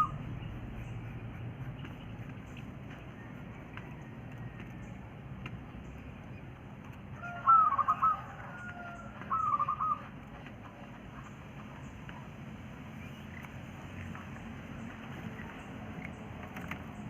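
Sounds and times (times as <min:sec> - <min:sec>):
quail calling: 0:00.0 - 0:00.3, 0:07.2 - 0:11.9.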